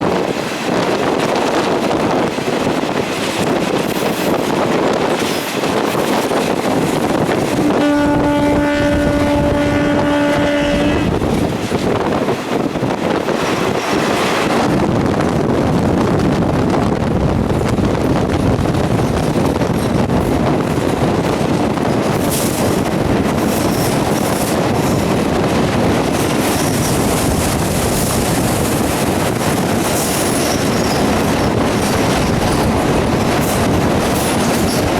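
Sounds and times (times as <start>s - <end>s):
train wheels rumbling on track: 0.0s - 34.9s
train horn: 7.6s - 11.2s.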